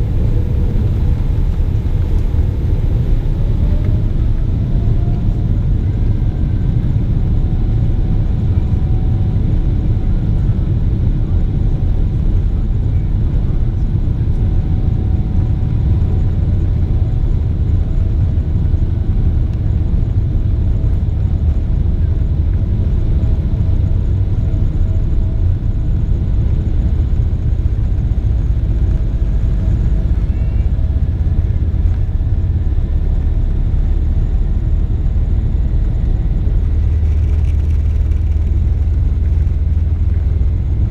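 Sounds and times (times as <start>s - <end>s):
jet engines roaring: 0.0s - 40.9s.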